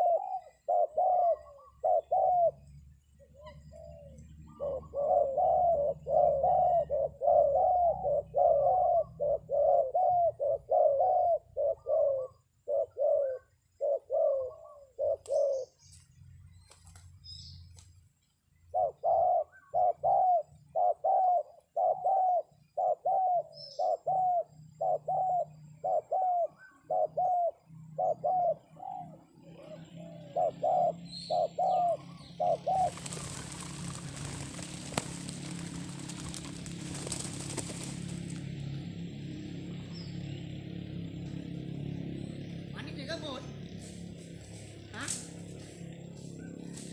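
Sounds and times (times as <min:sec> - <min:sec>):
dove cooing: 0:00.0 - 0:15.8, 0:18.7 - 0:40.3
small birds chirping: 0:00.0 - 0:46.9
rustling hiss: 0:32.7 - 0:38.5.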